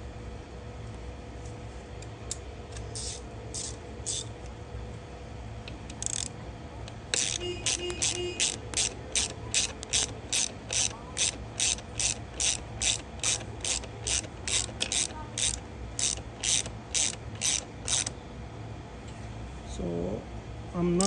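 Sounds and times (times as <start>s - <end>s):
ratchet wrench clicking: 3.0s - 4.3s, 5.7s - 6.3s, 6.9s - 18.1s.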